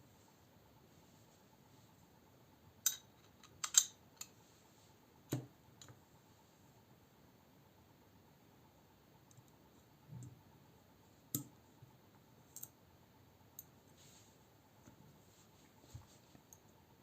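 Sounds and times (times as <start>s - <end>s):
clicks of small metal parts: 2.8s - 4.4s.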